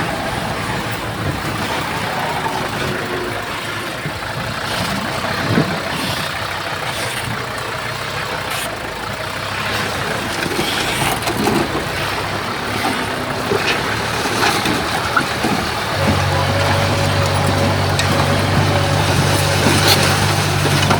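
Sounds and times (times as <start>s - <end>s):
deeper engine note: 0.0s - 20.9s
diesel engines running: 0.0s - 20.9s
rattle and scraping of tracks: 0.0s - 20.9s.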